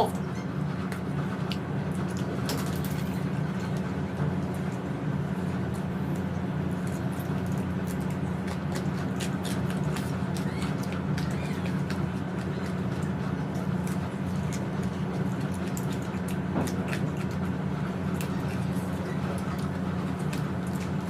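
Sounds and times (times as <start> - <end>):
steady low hum: 0.0 - 21.0
person chewing food: 5.6 - 21.0.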